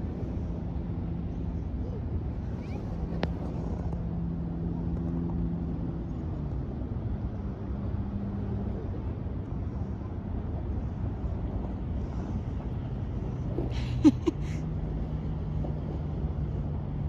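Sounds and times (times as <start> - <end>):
distant engine drone: 0.0 - 17.0
wind: 0.0 - 17.0.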